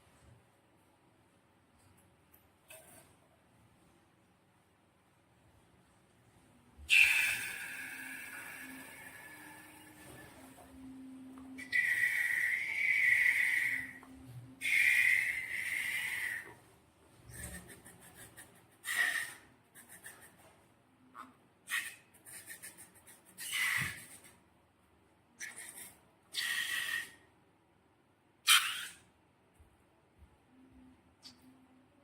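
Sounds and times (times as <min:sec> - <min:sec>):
squeaky hissing air bursts: 0:06.9 - 0:10.3, 0:11.6 - 0:14.0, 0:14.6 - 0:16.4, 0:23.4 - 0:24.2.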